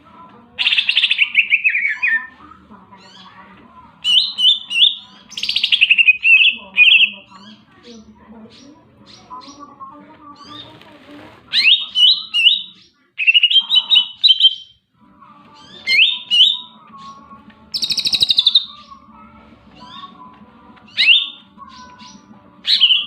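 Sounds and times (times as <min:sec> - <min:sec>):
bird singing whistled phrases: 0:04.1 - 0:07.2, 0:11.5 - 0:14.7, 0:15.6 - 0:16.8, 0:17.8 - 0:18.9, 0:20.9 - 0:23.0.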